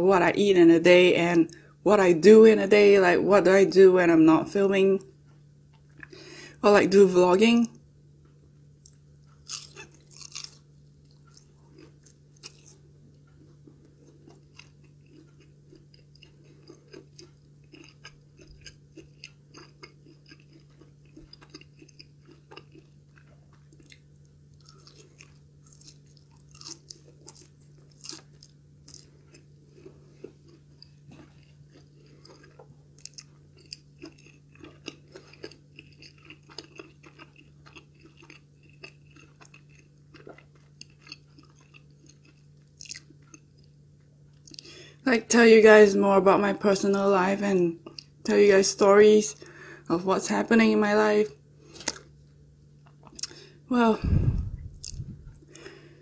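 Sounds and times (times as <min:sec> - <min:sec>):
crunchy chewing: 0:08.2 - 0:44.8, 0:51.6 - 0:56.0.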